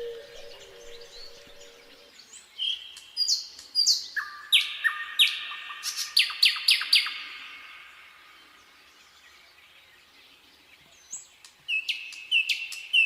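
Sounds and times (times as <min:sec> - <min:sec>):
faint low hooting call: 0:00.0 - 0:02.1
nightingale singing: 0:00.0 - 0:07.9, 0:11.1 - 0:13.0.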